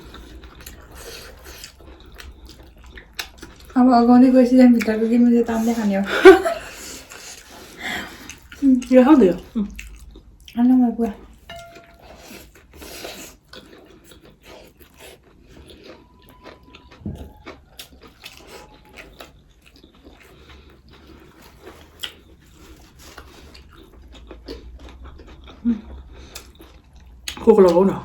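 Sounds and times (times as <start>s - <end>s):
person biting and chewing: 0.0s - 3.7s, 11.7s - 27.4s.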